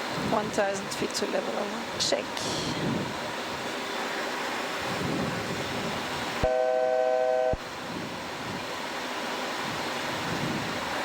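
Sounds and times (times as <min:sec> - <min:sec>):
cockpit airflow noise: 0:00.0 - 0:11.0.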